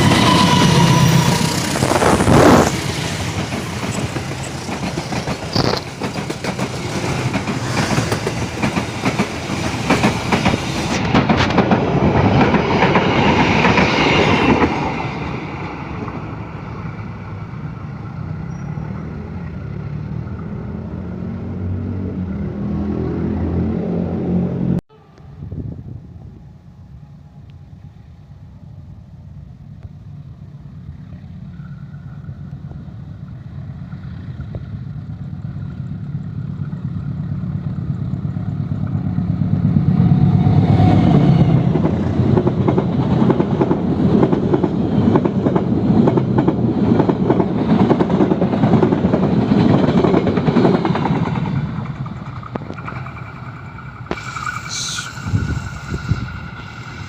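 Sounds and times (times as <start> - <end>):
train wheels clattering on rails: 0.0 - 16.3, 33.3 - 57.0.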